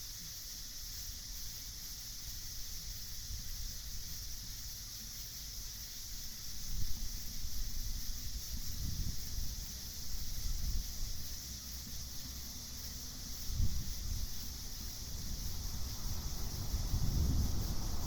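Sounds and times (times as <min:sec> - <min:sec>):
night insect chorus chirring: 0:00.0 - 0:18.0
wind gusts rumbling: 0:13.5 - 0:18.0.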